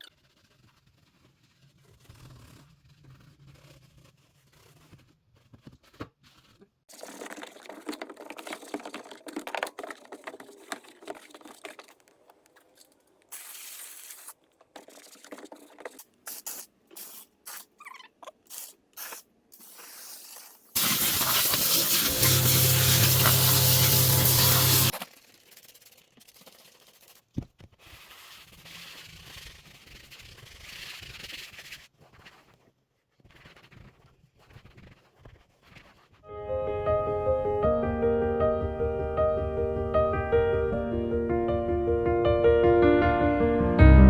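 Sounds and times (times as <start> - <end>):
rough scrubbing: 6.9 - 12.8
short spray squirts: 13.3 - 15.3, 15.9 - 17.8, 18.5 - 27.2
long continuous spray: 20.8 - 24.9.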